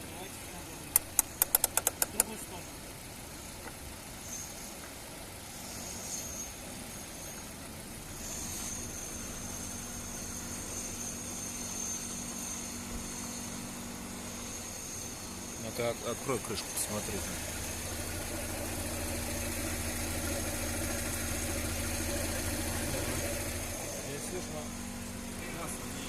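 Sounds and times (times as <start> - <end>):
car engine idling: 0.0 - 26.0
high-pitched whine: 5.6 - 26.0.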